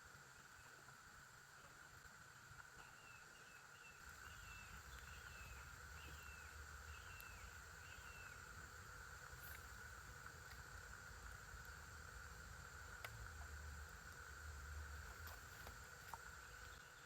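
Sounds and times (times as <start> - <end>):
high insect drone: 0.0 - 17.0
songbird whistling: 2.8 - 8.4.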